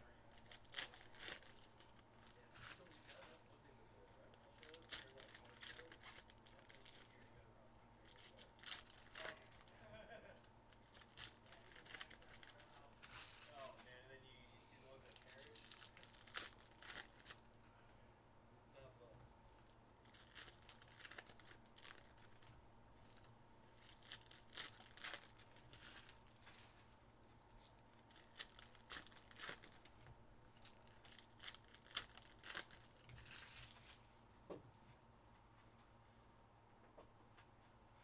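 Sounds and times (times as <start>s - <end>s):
wrappers torn and crinkled: 0.3s - 3.4s, 4.1s - 7.2s, 8.0s - 9.8s, 10.7s - 13.7s, 15.0s - 17.5s, 19.6s - 26.7s, 27.9s - 34.0s.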